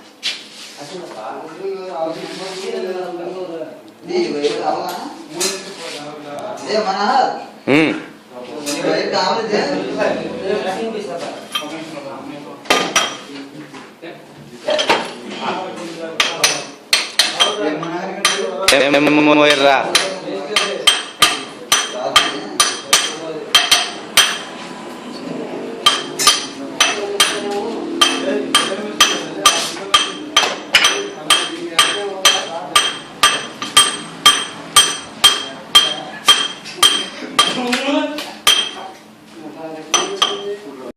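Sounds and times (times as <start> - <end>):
hammer striking metal: 12.7 - 13.2, 16.2 - 17.6, 18.2 - 24.6, 25.8 - 37.7, 38.4 - 38.9, 39.9 - 40.5.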